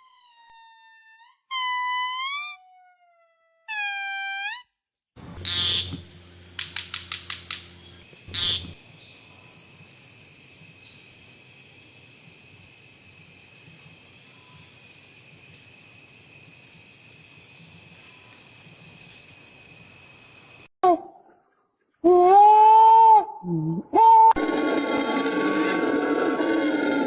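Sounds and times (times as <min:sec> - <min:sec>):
bird whistle rising and falling: 0:05.4 - 0:08.8
bird chirps and calls: 0:05.4 - 0:12.7.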